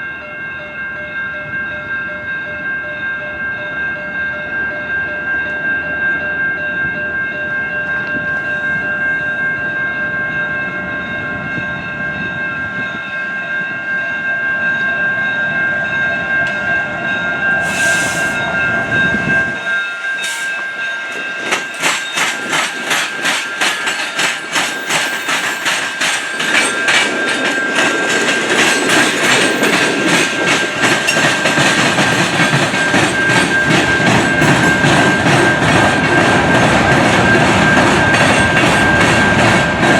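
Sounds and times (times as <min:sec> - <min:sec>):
high ringing tones: 0:00.0 - 0:39.8
wheels clicking over rail joints: 0:21.0 - 0:39.9.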